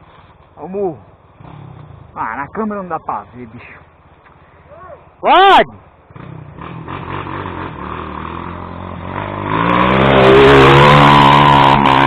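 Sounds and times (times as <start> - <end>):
motorcycle engine revving hard: 1.4 - 2.2, 6.1 - 12.0.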